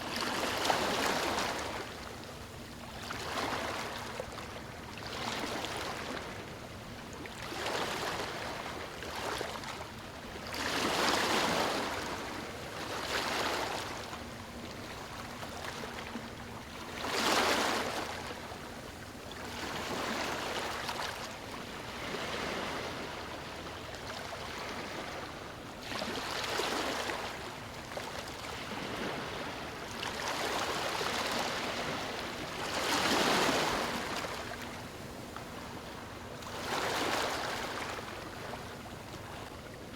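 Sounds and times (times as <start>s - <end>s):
background moving water: 0.0s - 39.9s
waves breaking on stony shore: 10.5s - 12.3s, 21.8s - 23.3s, 25.9s - 27.4s, 28.5s - 34.7s, 36.5s - 38.6s.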